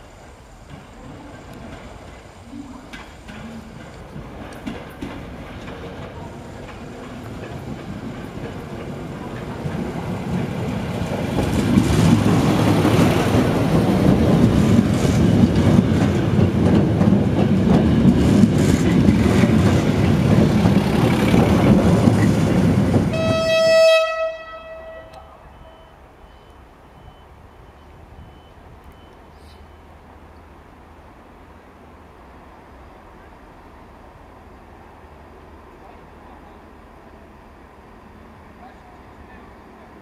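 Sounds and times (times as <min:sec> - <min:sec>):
train rumbling past: 0:00.0 - 0:40.0
wheels clacking over rail joints: 0:00.6 - 0:23.2
train horn toot: 0:23.1 - 0:25.8.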